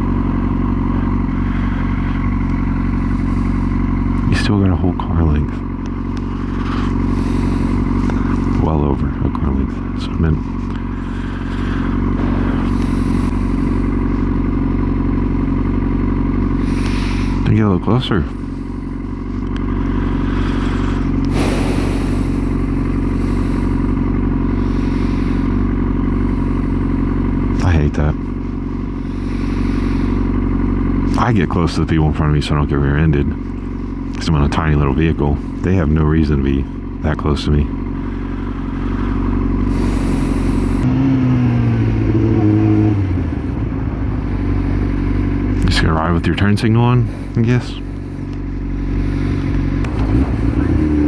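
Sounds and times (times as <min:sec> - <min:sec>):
motorcycle engine idling: 0:00.0 - 0:51.0
steady rush of noise: 0:20.0 - 0:23.8.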